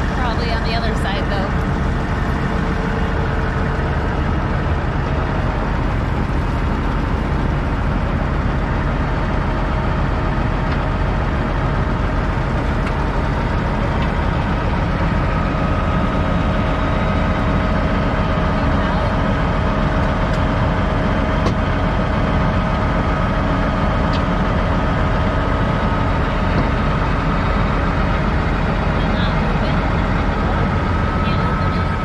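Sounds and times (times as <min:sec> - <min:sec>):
diesel engine droning: 0:00.0 - 0:32.0.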